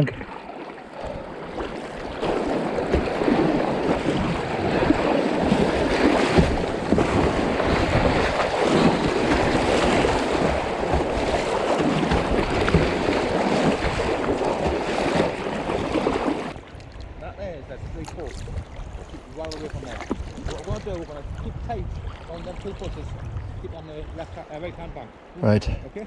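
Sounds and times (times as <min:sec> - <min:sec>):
river water rushing: 0:00.0 - 0:16.6
wind buffeting microphone: 0:01.1 - 0:25.2.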